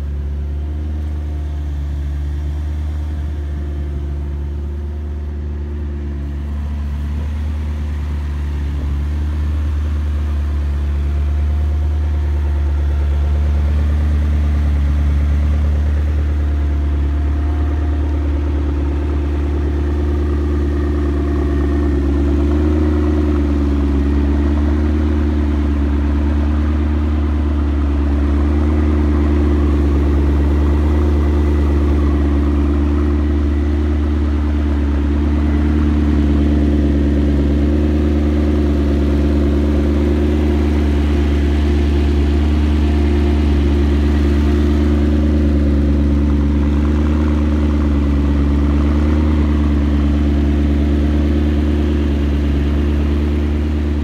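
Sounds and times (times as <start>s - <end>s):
car engine rumbling: 0.0s - 54.0s.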